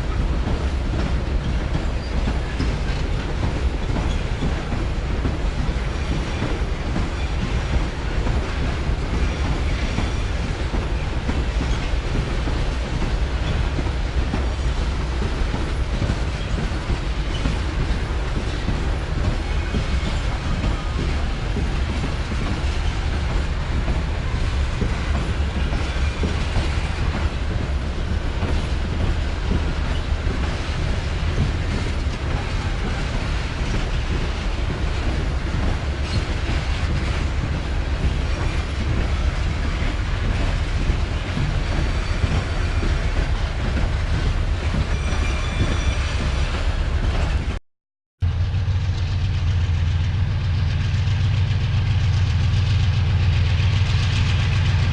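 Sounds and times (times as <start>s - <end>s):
train wheels clattering over rails: 0.0s - 47.6s, 48.5s - 54.9s
high wheel squeal: 44.9s - 46.6s.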